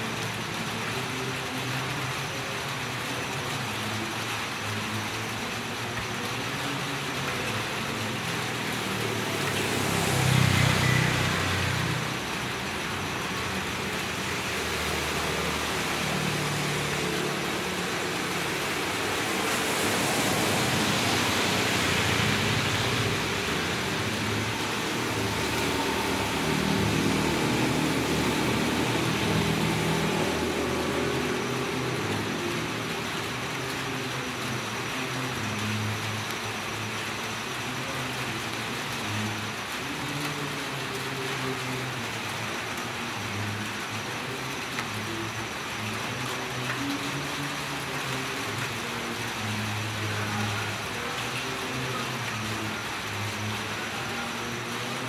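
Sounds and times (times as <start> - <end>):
steady rain falling: 0.0 - 55.0
vehicles passing on wet road: 0.0 - 55.0
motorbike passing: 8.6 - 33.0.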